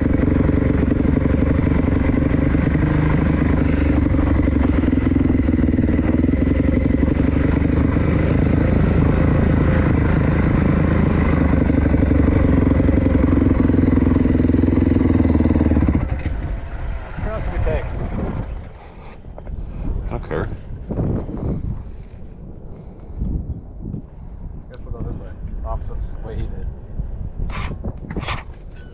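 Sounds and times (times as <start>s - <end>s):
dirt bike engine running: 0.0s - 19.5s.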